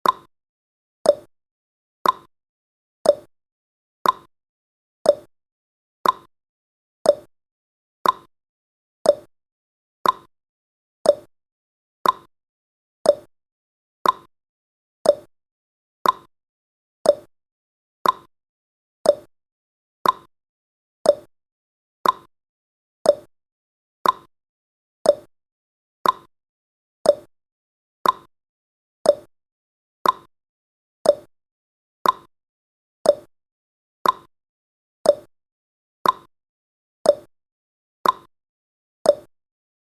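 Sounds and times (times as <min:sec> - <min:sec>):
clock ticking: 0:02.0 - 0:02.3, 0:04.0 - 0:04.3, 0:06.0 - 0:06.3, 0:08.0 - 0:08.3, 0:10.0 - 0:10.3, 0:12.0 - 0:12.3, 0:14.0 - 0:14.3, 0:15.1 - 0:15.3, 0:16.0 - 0:16.3, 0:18.0 - 0:18.3, 0:20.0 - 0:20.3, 0:21.1 - 0:21.3, 0:22.0 - 0:22.3, 0:24.0 - 0:24.3, 0:26.0 - 0:26.3, 0:28.0 - 0:28.3, 0:29.1 - 0:29.3, 0:30.0 - 0:30.3, 0:31.1 - 0:31.3, 0:32.0 - 0:32.3, 0:33.1 - 0:33.3, 0:34.0 - 0:34.3, 0:35.1 - 0:35.3, 0:36.0 - 0:36.3, 0:38.0 - 0:38.3, 0:39.1 - 0:39.3.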